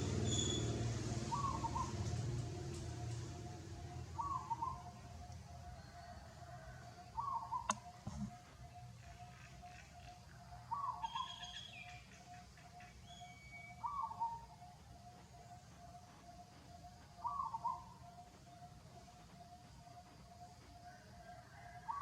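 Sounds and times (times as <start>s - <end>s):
sharp click: 7.7s - 8.3s.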